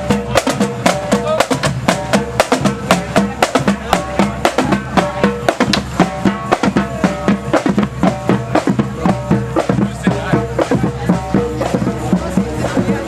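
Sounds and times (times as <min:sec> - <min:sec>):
bass drum beating: 0:00.0 - 0:13.0
marching band playing: 0:00.0 - 0:13.0.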